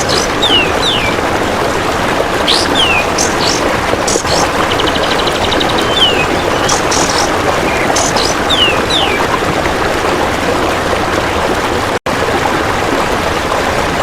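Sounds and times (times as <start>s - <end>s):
songbird whistles and chirps: 0.0s - 1.2s, 2.5s - 9.2s.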